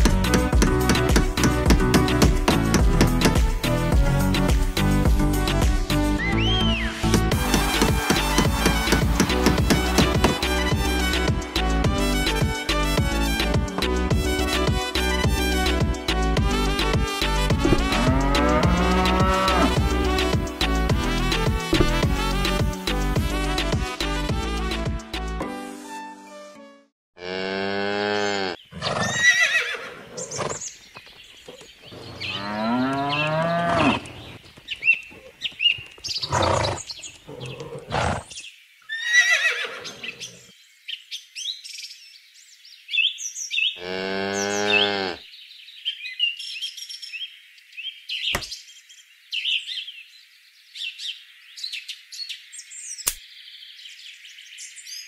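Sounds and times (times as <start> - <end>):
birds chirping: 0.0 - 24.2, 28.0 - 55.0
cattle mooing: 17.6 - 20.2, 27.2 - 28.6, 32.1 - 34.3, 43.8 - 45.2.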